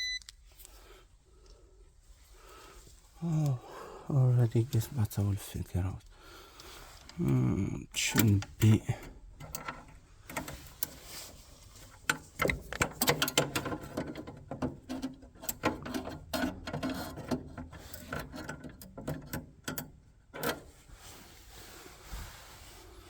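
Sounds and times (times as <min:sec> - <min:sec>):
tools and metal parts clinking: 0:12.0 - 0:20.6.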